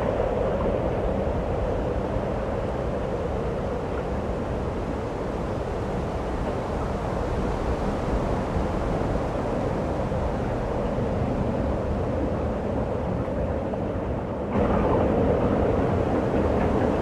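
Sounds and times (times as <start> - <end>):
snowstorm wind rushing: 14.5 - 17.0.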